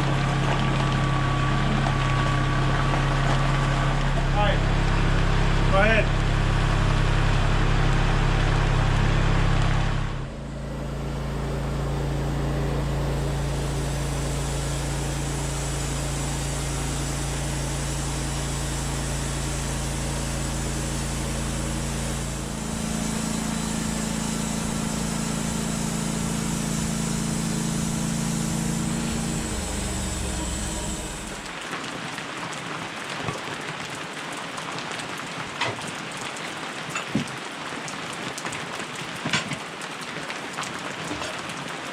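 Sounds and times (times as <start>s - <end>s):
rain falling: 0.0s - 41.9s
low drone shifting pitch: 1.1s - 31.5s.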